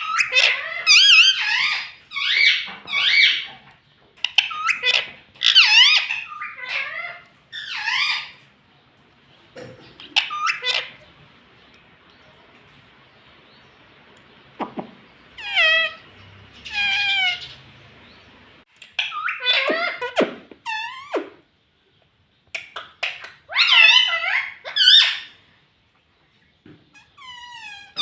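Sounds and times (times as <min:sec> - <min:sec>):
parrot warbling calls: 0:00.0 - 0:03.5, 0:04.2 - 0:08.4, 0:10.2 - 0:11.0, 0:15.4 - 0:17.8, 0:18.9 - 0:21.4, 0:22.6 - 0:25.4, 0:26.9 - 0:28.0
parrot sharp calls: 0:00.0 - 0:03.6, 0:04.2 - 0:08.4, 0:10.0 - 0:11.1, 0:14.8 - 0:17.7, 0:18.8 - 0:21.4, 0:22.5 - 0:25.4.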